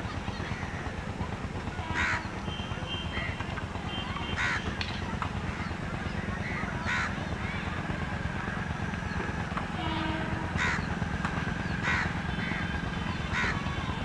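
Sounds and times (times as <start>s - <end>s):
bird calls: 1.9s - 7.8s, 10.5s - 14.0s.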